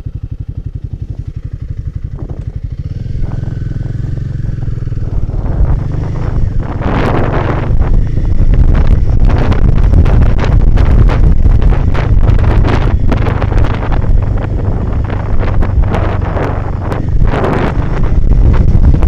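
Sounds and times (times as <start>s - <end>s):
motorcycle engine droning: 0.0s - 19.0s
wind buffeting microphone: 0.0s - 19.0s.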